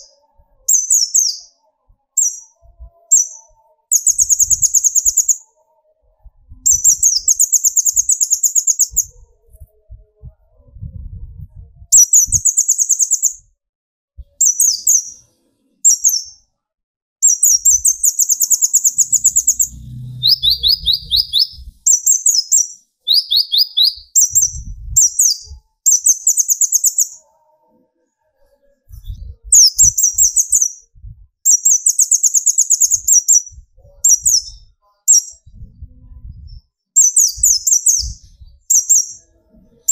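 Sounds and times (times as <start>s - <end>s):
bird singing high rapid trills: 0.0s - 5.6s, 17.2s - 27.2s, 31.5s - 35.4s
bird giving lower slower trill: 17.2s - 27.2s.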